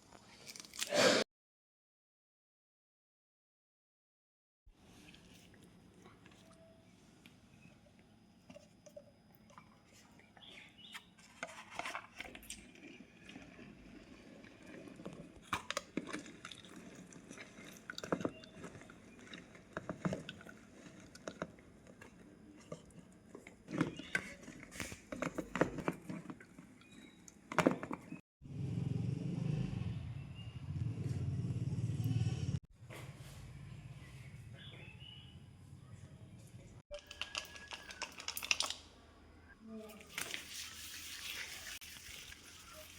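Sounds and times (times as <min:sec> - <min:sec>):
kitchen utensils tapping and clicking: 0:36.9 - 0:38.8.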